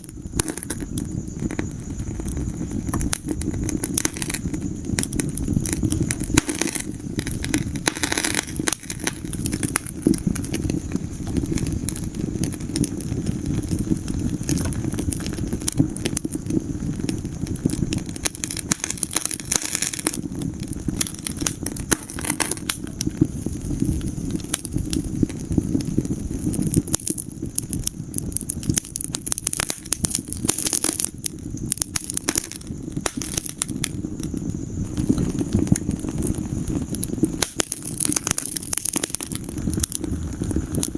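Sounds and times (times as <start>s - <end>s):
burning logs crackling: 0.0s - 40.9s
low rumble of flames: 0.0s - 40.9s.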